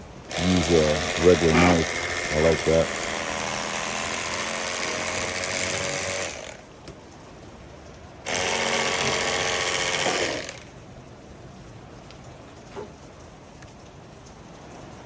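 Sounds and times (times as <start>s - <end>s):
electric fillet knife buzzing: 0.3s - 6.6s, 8.3s - 10.7s.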